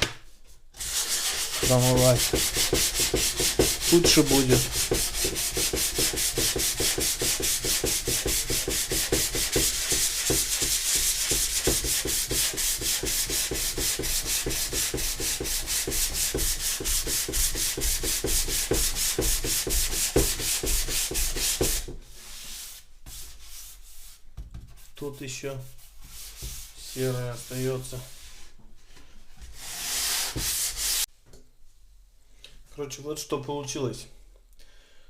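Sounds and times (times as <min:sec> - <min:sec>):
sandpaper scraping plastic: 0:00.8 - 0:22.6, 0:29.6 - 0:31.1.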